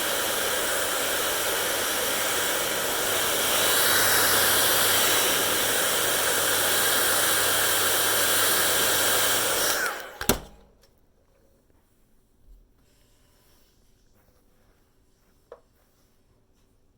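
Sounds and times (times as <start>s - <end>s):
hair dryer blowing: 0.0s - 10.7s
hair dryer motor winding down: 0.0s - 10.7s
switch click: 10.0s - 10.7s.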